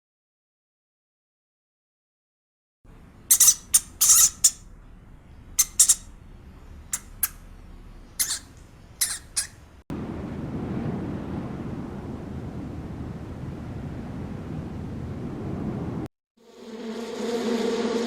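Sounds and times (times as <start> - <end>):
young animal squeaking: 3.2 - 4.7, 5.4 - 6.2, 6.8 - 9.8.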